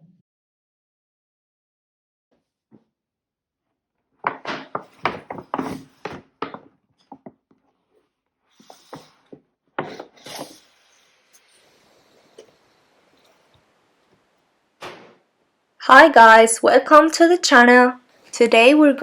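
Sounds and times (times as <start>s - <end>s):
knocks and rubbing: 4.2s - 7.9s, 8.6s - 15.4s.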